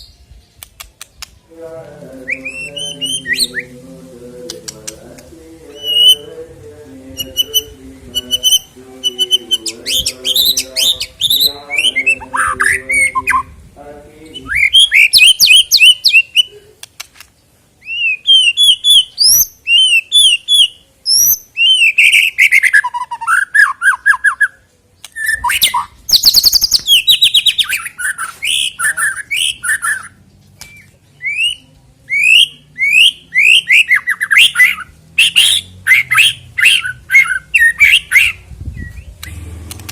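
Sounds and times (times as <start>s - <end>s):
bird singing whistled notes: 2.2s - 3.7s, 5.7s - 6.3s, 7.2s - 13.5s, 14.3s - 16.5s, 17.8s - 39.3s
bird harsh chattering calls: 32.1s - 38.4s.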